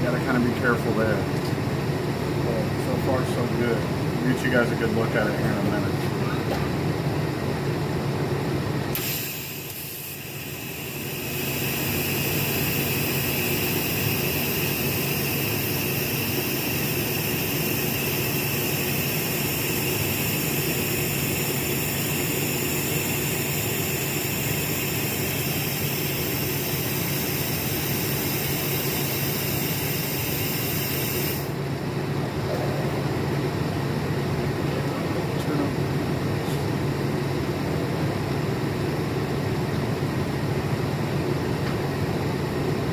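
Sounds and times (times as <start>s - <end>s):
welding arc hiss: 8.9s - 31.6s.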